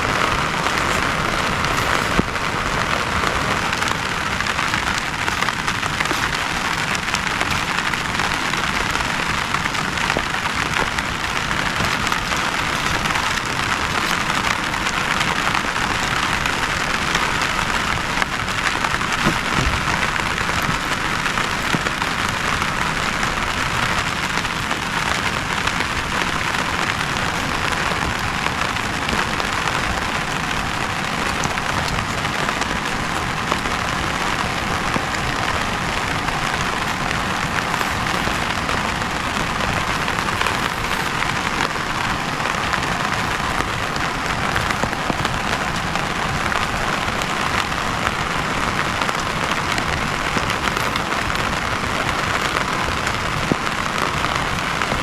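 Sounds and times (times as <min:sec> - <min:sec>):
heavy rain falling: 0:00.0 - 0:55.0
raindrops ticking close by: 0:00.0 - 0:55.0.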